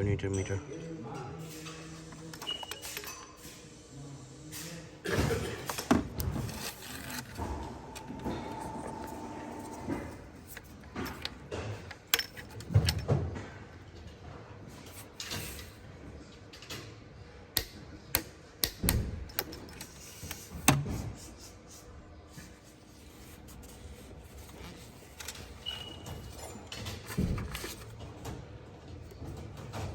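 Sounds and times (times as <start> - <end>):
hand tools and metal parts clinking: 9.6 - 13.2.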